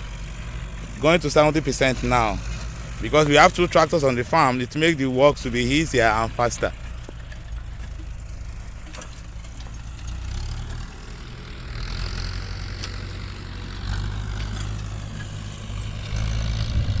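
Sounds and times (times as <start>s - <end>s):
tractor engine droning: 0.0s - 17.0s.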